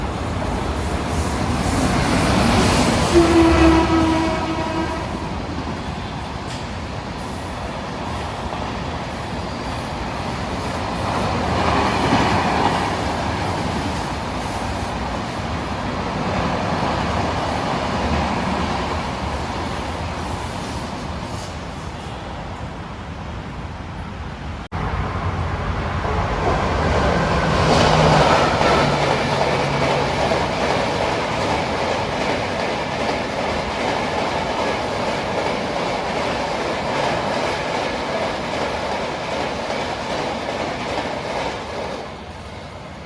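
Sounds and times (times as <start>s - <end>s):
locomotive horn blast: 3.0s - 5.5s
train wheels running past: 24.8s - 43.0s.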